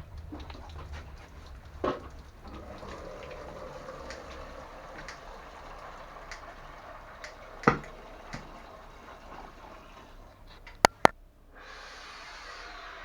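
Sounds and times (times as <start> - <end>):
water dripping and trickling: 0.0 - 11.1
sharp clicks: 10.6 - 11.1.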